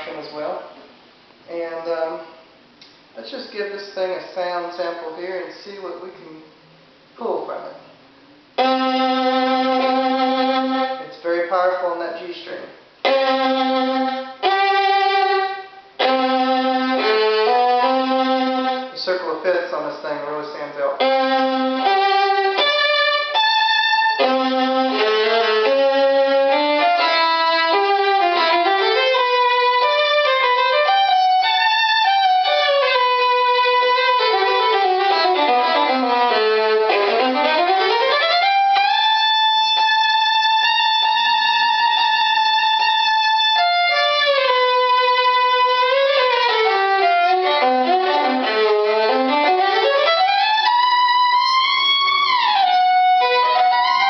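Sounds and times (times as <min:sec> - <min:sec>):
solo violin playing: 0:08.5 - 0:11.8, 0:12.4 - 0:54.0.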